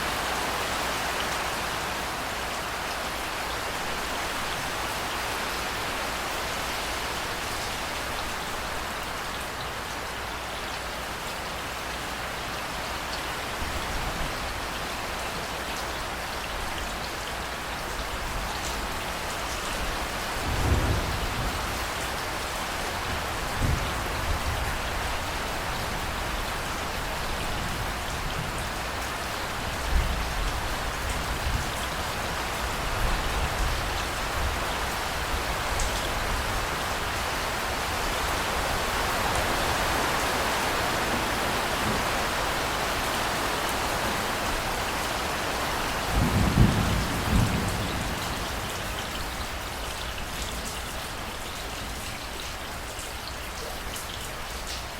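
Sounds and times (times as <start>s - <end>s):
heavy rain hissing: 16.0s - 52.0s
thunder rumbling: 46.1s - 48.9s.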